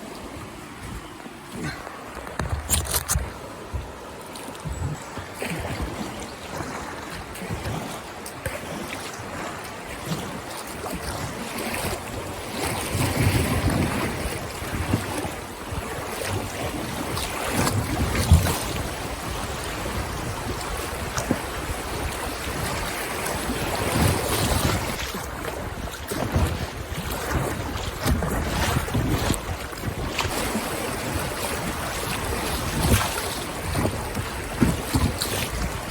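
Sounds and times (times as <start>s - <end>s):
river water rushing and splashing: 0.0s - 35.9s
wind gusting on microphone: 12.9s - 35.9s.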